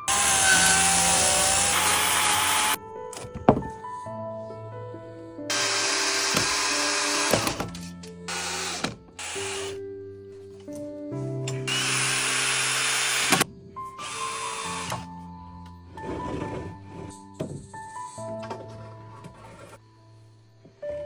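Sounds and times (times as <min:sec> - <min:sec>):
power drill running: 0:00.0 - 0:02.8, 0:05.5 - 0:07.7, 0:08.3 - 0:09.8, 0:11.5 - 0:13.4, 0:14.0 - 0:15.1
background music: 0:00.0 - 0:21.0.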